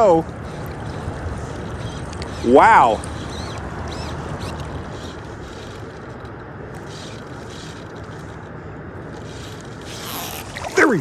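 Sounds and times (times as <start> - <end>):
river water rushing: 9.8 - 11.0.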